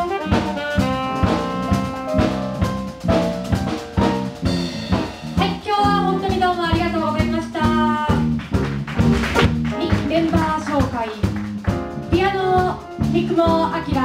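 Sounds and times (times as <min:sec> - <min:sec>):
jazz quartet playing: 0:00.0 - 0:14.0.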